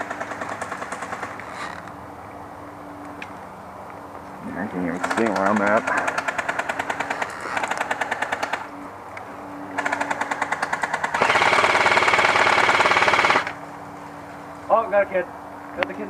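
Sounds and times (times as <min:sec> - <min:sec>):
airsoft guns firing bursts: 0:00.0 - 0:01.4, 0:04.9 - 0:08.7, 0:09.8 - 0:13.6.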